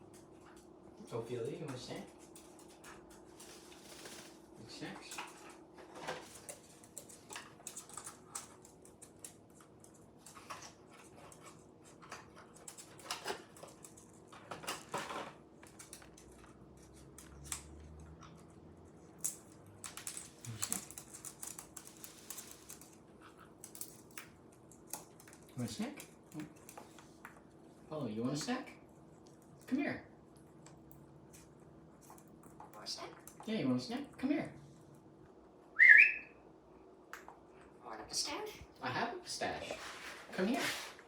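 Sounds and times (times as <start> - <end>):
faint room hum: 0.0 - 41.0
parrots clicking and tapping: 5.0 - 27.6.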